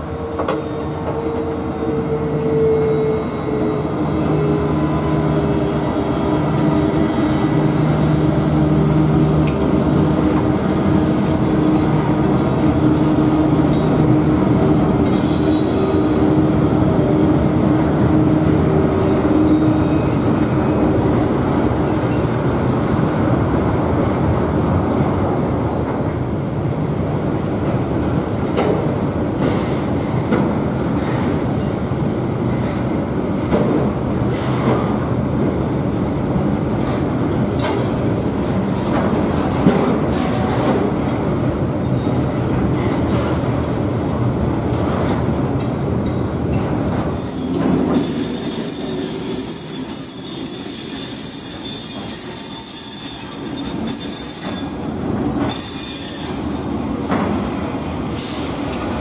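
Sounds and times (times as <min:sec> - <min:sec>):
high-pitched wheel squeals: 0:00.1 - 0:12.7, 0:47.2 - 0:54.9, 0:55.5 - 0:56.6.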